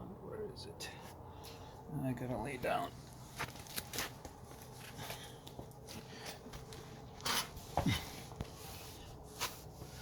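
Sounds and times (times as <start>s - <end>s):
person rustling and scraping: 2.9s - 10.0s.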